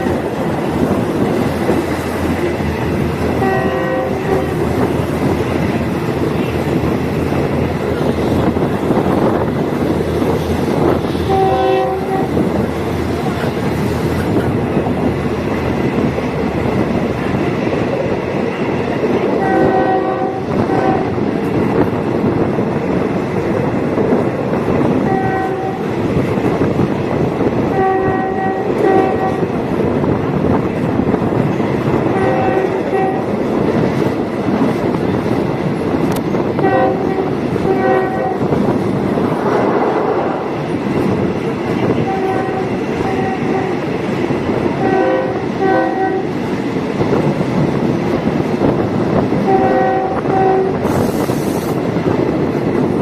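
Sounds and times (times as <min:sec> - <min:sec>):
train wheels and engine rumble: 0:00.0 - 0:53.0
train horn blasts: 0:03.3 - 0:04.9, 0:11.2 - 0:12.5, 0:19.4 - 0:21.2, 0:25.0 - 0:25.9, 0:27.7 - 0:29.5, 0:32.0 - 0:33.3, 0:36.6 - 0:38.6, 0:41.9 - 0:43.8, 0:44.8 - 0:46.4, 0:49.4 - 0:50.9.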